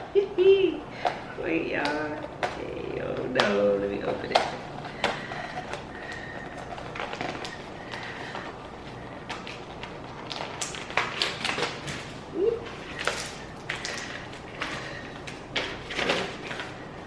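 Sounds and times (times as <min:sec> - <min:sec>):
snack packet crinkling: 0:05.2 - 0:17.0.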